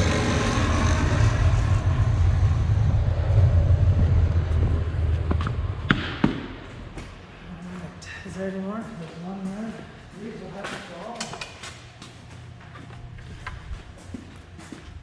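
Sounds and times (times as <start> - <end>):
vehicle engine rumbling: 0.0 - 8.9
sharp knocks: 5.3 - 7.1.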